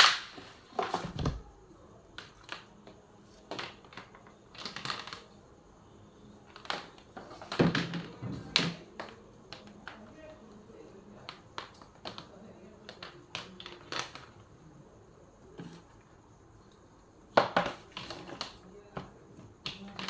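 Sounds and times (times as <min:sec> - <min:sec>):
plastic parts clicking and knocking: 0:02.2 - 0:05.4, 0:06.5 - 0:10.2, 0:11.2 - 0:14.5, 0:17.3 - 0:20.0.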